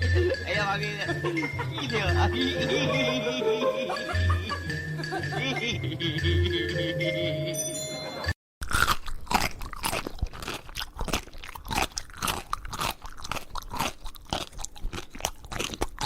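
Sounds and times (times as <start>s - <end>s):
crunchy chewing: 8.6s - 16.0s.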